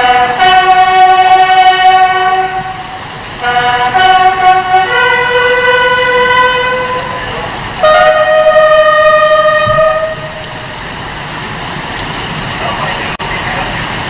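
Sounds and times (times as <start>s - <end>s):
horn blasts: 0.0s - 10.7s.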